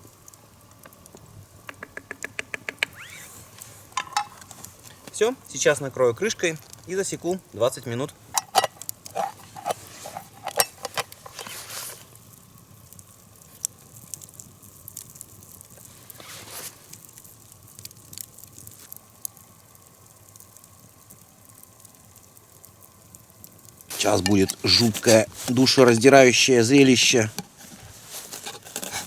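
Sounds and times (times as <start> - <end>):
campfire crackling: 0.0 - 29.0
sharp pops: 0.8 - 5.2
short rustles: 23.9 - 26.1.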